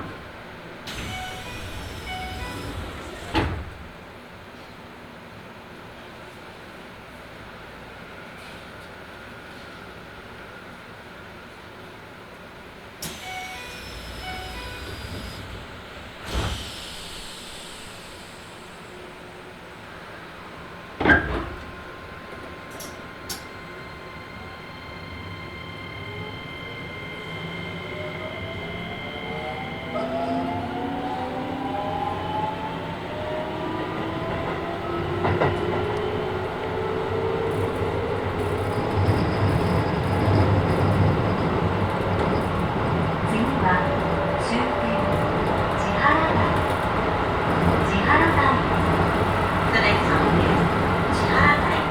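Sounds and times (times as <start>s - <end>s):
train door clunk: 0.0s - 4.0s, 13.0s - 18.9s, 21.0s - 23.5s
train car background noise: 0.0s - 51.9s
train door falling whine: 0.8s - 3.9s, 13.0s - 19.0s
short beeping tones: 13.2s - 15.4s
wheel and rail rumble: 33.1s - 51.9s.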